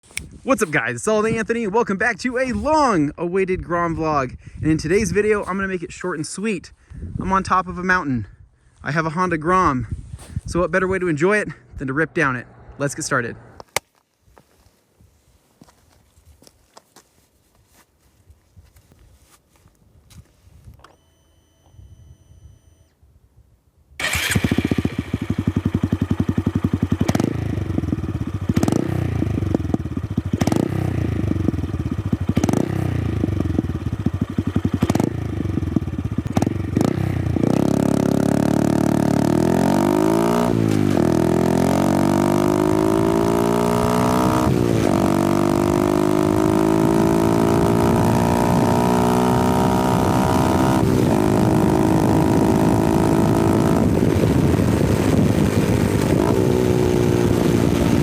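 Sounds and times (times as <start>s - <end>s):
motorcycle engine idling: 24.0s - 37.6s
exhaust cracks: 24.0s - 50.2s
motorcycle accelerating: 24.0s - 58.0s.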